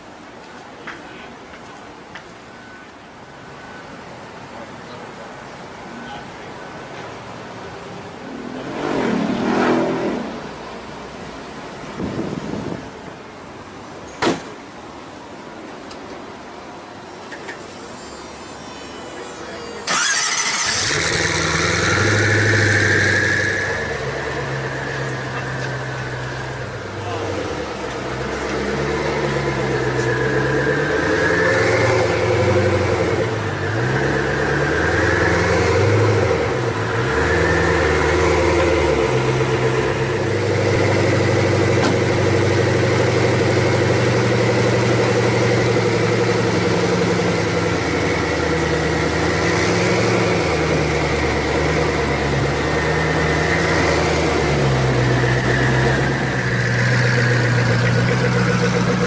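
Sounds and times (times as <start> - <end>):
car engine idling: 17.1 - 59.0.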